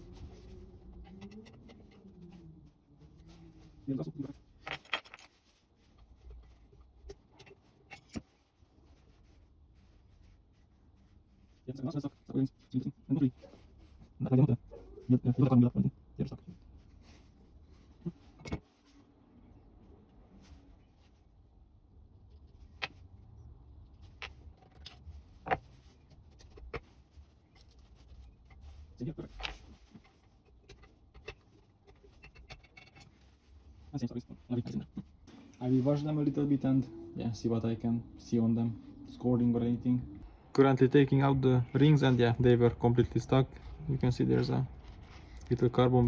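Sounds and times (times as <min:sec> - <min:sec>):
faint low hum: 0:00.0 - 0:46.0.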